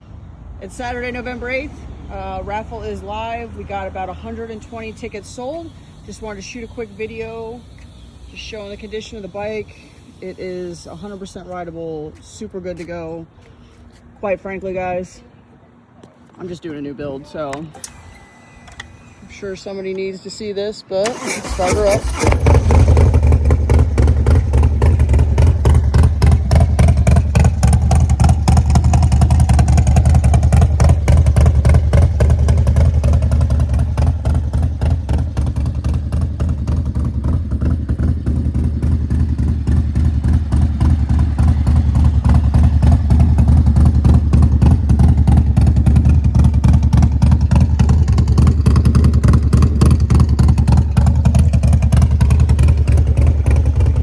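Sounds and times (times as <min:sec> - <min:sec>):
motorcycle engine idling: 0:02.1 - 0:11.6, 0:21.1 - 0:54.0.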